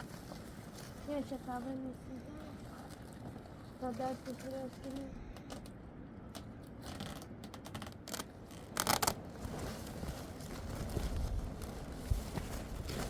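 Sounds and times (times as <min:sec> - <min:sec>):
scraping and rustling: 0:06.8 - 0:13.0.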